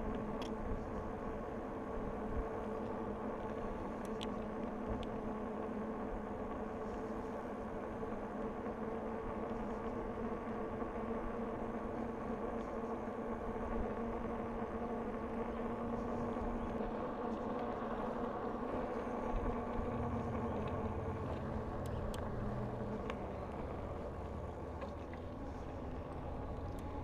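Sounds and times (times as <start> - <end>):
faint ticks: 0.0 - 0.6, 2.7 - 5.3, 18.8 - 27.0
bicycle riding on pavement: 0.0 - 27.0.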